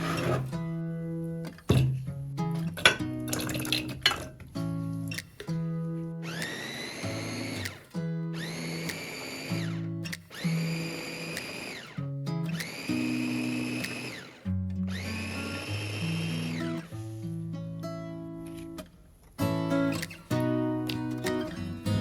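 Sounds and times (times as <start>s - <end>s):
kitchen appliance motor whine: 6.2s - 7.6s, 8.4s - 9.8s, 10.4s - 12.0s, 12.6s - 14.4s, 15.0s - 16.7s.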